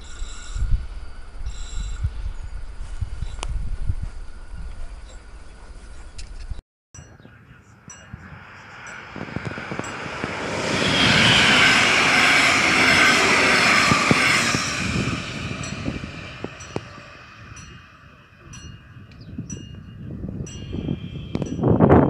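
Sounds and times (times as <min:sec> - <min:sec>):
train rushing past: 0:07.8 - 0:19.8.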